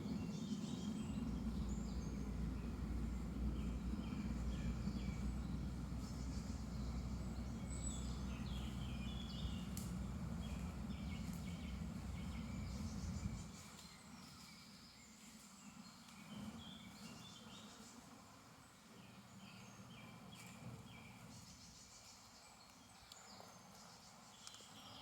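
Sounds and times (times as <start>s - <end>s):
steady low rumble: 0.0s - 13.9s
songbirds chirping and whistling: 0.0s - 25.0s.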